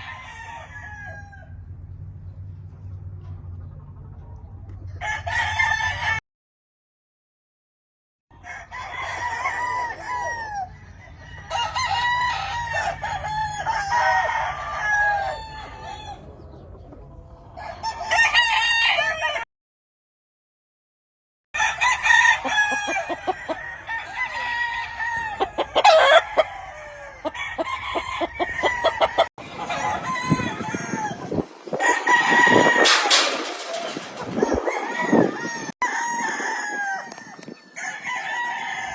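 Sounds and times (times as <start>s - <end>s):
roosters crowing: 0.0s - 1.8s, 4.9s - 6.2s, 8.3s - 16.6s, 17.2s - 19.4s, 21.6s - 38.9s.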